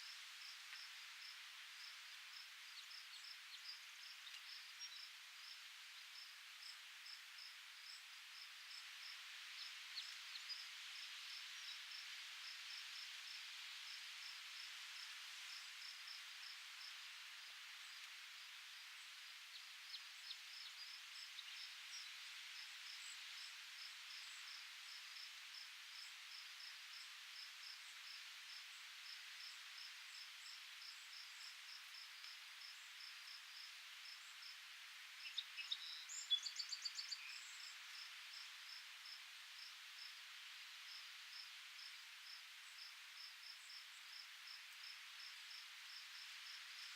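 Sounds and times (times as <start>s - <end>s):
insect chirping: 18.7s - 46.9s.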